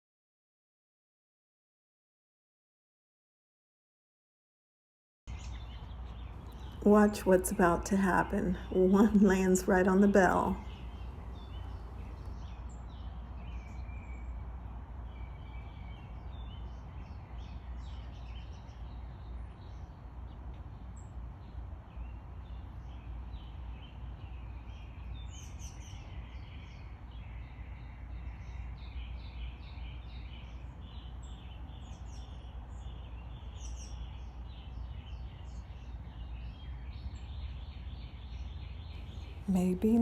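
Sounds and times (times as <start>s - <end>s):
songbirds chirping: 5.3s - 14.4s, 15.0s - 40.0s
low outdoor rumble: 5.6s - 12.5s, 39.0s - 40.0s.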